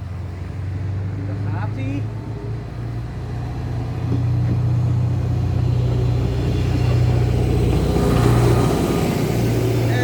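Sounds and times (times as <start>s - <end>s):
diesel train pulling away: 2.0s - 10.0s.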